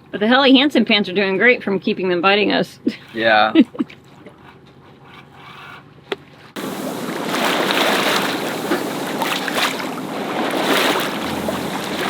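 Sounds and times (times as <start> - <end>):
water rushing past boat: 6.6 - 12.0
wind buffeting microphone: 6.6 - 12.0.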